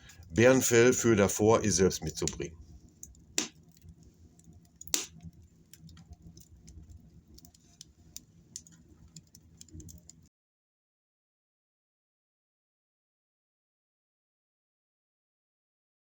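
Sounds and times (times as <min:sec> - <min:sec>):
wood fire crackling: 0:00.0 - 0:10.3.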